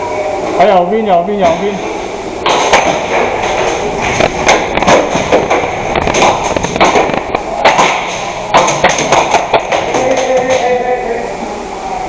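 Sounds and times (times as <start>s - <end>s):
airsoft guns firing: 4.5s - 10.3s.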